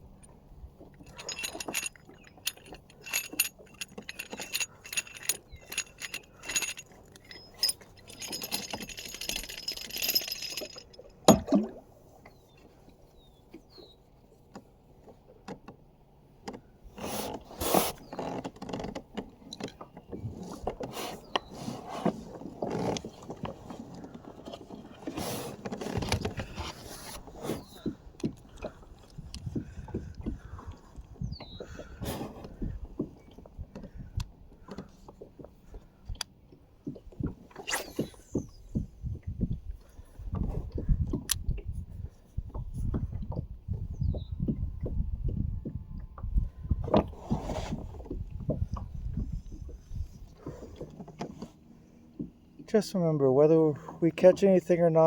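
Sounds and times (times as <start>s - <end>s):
metallic clicking and jingling: 0.1s - 11.4s
bumps and scrapes: 1.0s - 11.5s, 19.6s - 30.6s, 46.3s - 51.6s.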